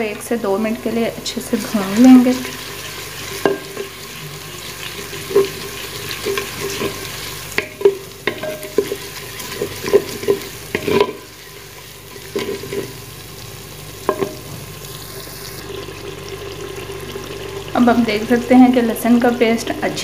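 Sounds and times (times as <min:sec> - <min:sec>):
onions sizzling in hot oil: 0:00.0 - 0:20.0
spoon scraping and knocking pot: 0:03.3 - 0:04.0, 0:05.2 - 0:13.0, 0:14.1 - 0:14.6.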